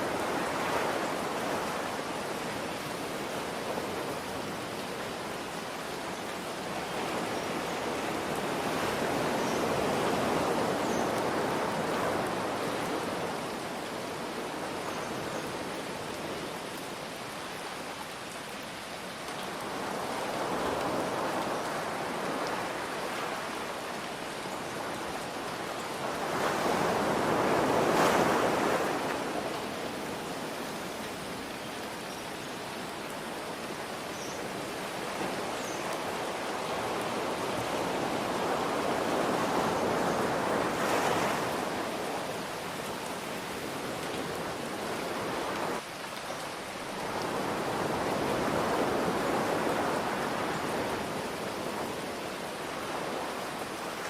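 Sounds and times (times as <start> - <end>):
ocean waves washing in: 34.6 - 45.8.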